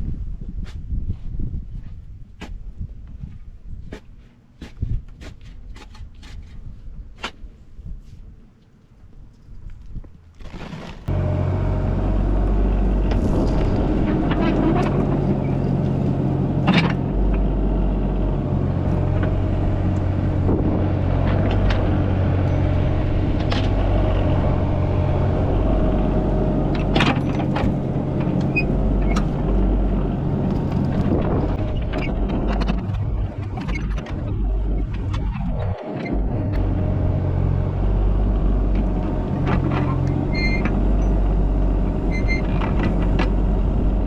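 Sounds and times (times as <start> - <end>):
diesel engine running: 11.1 - 44.0.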